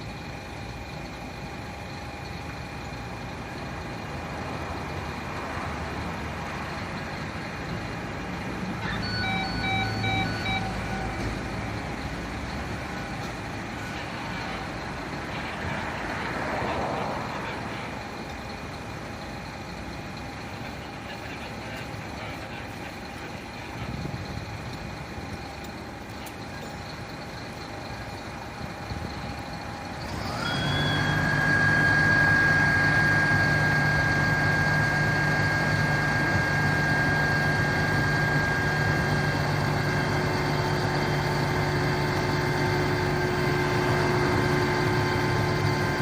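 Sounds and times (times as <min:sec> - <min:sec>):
fire truck engine running: 0:00.0 - 0:46.0
electronic warning beeps: 0:08.8 - 0:11.8, 0:30.3 - 0:41.4.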